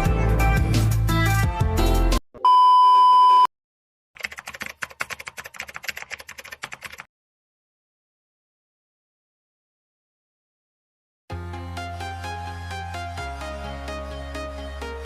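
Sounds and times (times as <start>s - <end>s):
loud electronic beep: 2.4s - 3.5s.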